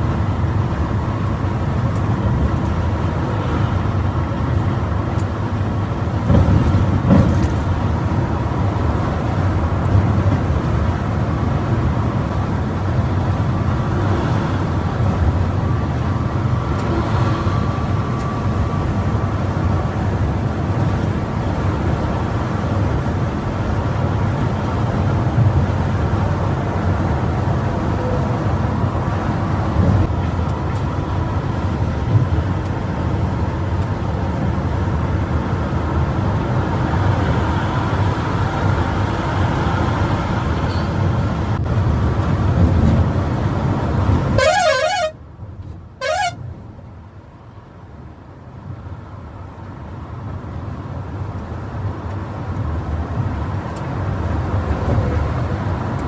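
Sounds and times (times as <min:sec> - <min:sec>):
bus engine and road noise: 0:00.0 - 0:56.0
warbling multi-tone horn: 0:44.4 - 0:45.2, 0:46.0 - 0:46.4.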